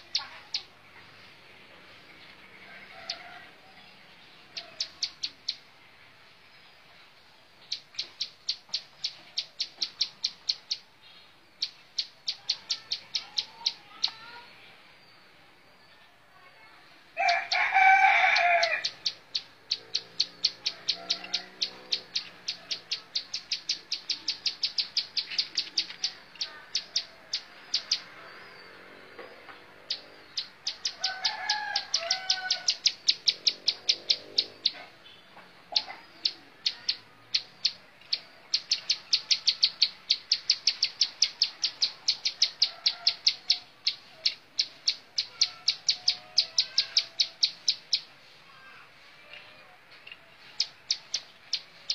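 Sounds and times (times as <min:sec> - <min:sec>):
distant rooster crowing: 0:02.5 - 0:05.0, 0:17.2 - 0:19.2, 0:20.4 - 0:23.4, 0:25.8 - 0:35.0, 0:38.2 - 0:44.4, 0:45.2 - 0:48.7
bird singing rapid sharp notes: 0:07.6 - 0:11.0, 0:18.3 - 0:48.2.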